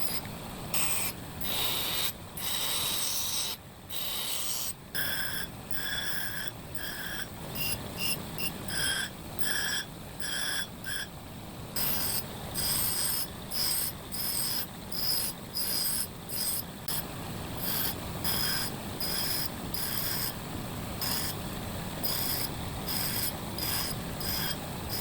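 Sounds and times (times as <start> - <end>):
metal scraping with high squeal: 0.8 - 11.1.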